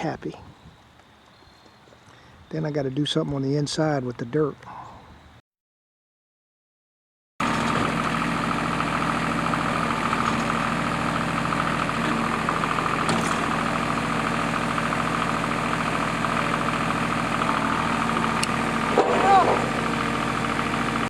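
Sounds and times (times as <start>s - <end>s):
engine running steadily: 7.4s - 21.0s.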